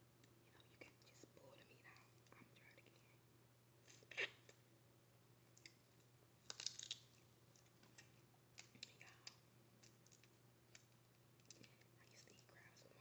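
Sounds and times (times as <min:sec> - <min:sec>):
crab shell cracking: 0:05.5 - 0:11.8.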